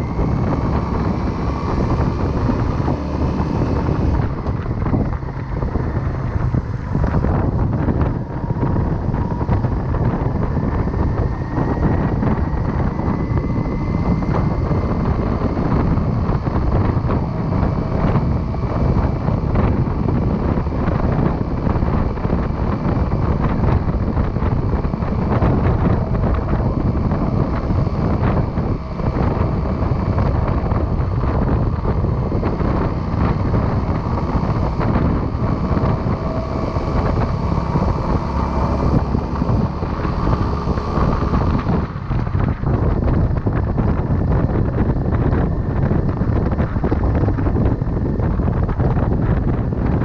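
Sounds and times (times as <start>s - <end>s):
faint rising whine: 0.0s - 50.0s
motorcycle engine: 0.0s - 50.0s
wind buffeting microphone: 0.0s - 50.0s.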